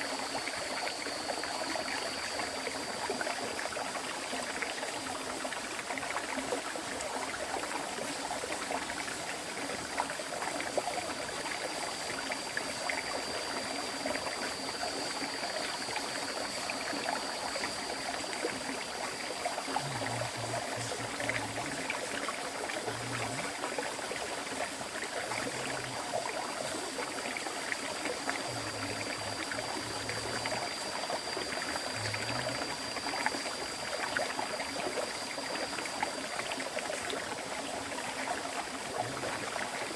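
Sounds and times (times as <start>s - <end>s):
thin steady high tone: 0.0s - 4.7s, 9.5s - 39.9s
stream water flowing: 0.0s - 39.9s.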